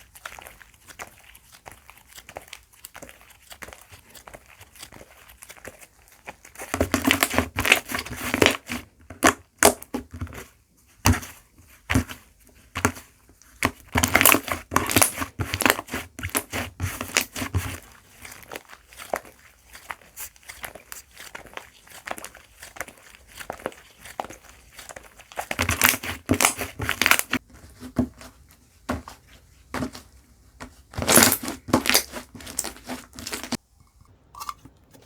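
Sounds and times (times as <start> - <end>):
slime squishing and popping: 0.0 - 10.4, 13.6 - 27.4, 31.0 - 33.6.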